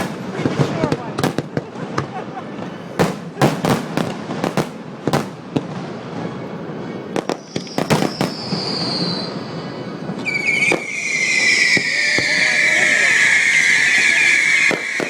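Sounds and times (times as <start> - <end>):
firework bangs and crackles: 0.0 - 15.0
loud high firework whistle: 7.2 - 15.0
firework whistle falling in pitch: 7.3 - 15.0.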